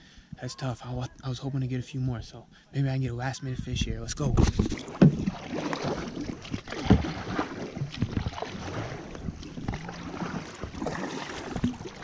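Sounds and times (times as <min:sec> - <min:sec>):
paddle splashing in water: 0:04.3 - 0:12.0
knocks and thuds: 0:04.4 - 0:05.4.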